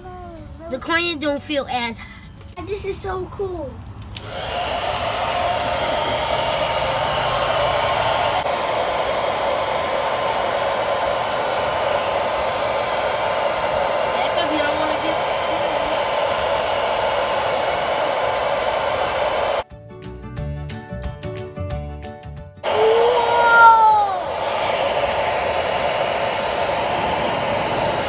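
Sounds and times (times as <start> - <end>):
hair dryer running: 4.1 - 19.6, 22.6 - 28.0.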